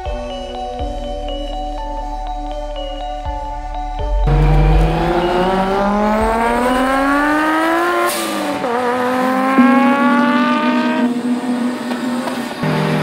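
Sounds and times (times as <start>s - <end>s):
car engine revving: 4.2s - 13.0s.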